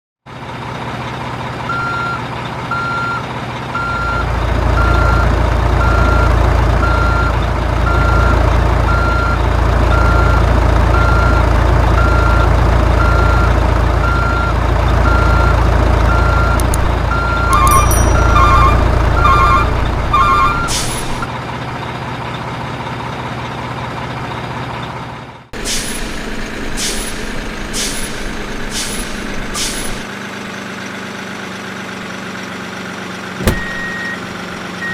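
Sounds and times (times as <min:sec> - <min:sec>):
heavy truck engine running: 0:00.2 - 0:34.9
reversing alarm beeping: 0:01.7 - 0:03.2, 0:04.8 - 0:21.3, 0:33.4 - 0:34.9
double-toned beep: 0:13.0 - 0:20.7, 0:33.4 - 0:34.2
sharp clicks: 0:16.5 - 0:16.9.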